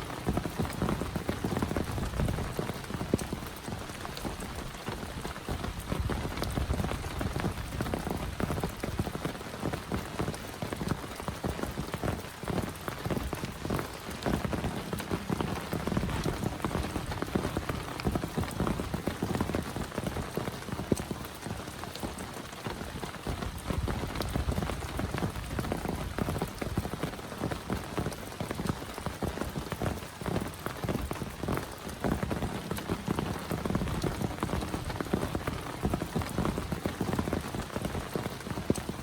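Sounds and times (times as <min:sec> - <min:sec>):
heavy rain falling: 0:00.0 - 0:39.0
raindrops ticking on a surface: 0:00.0 - 0:39.0.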